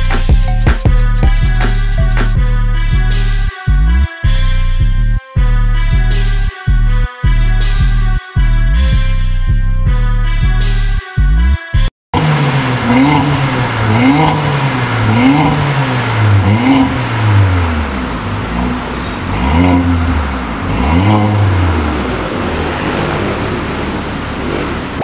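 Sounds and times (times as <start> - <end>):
car engine revving in quick blips: 12.2 - 25.0.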